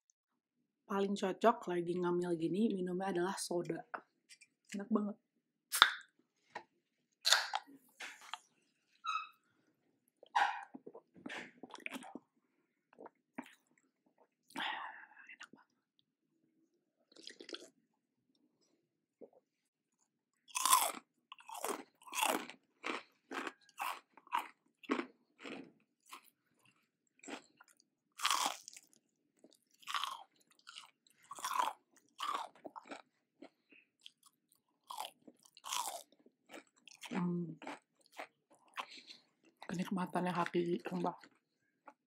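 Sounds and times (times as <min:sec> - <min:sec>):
crispy chicken crunching while chewed: 0:17.1 - 0:17.8, 0:20.4 - 0:39.6.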